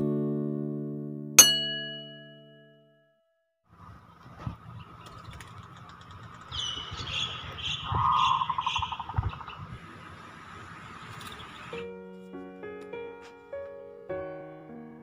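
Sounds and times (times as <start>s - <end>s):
fast lower bird trill: 6.4s - 9.6s
high bird chirps: 6.4s - 9.7s.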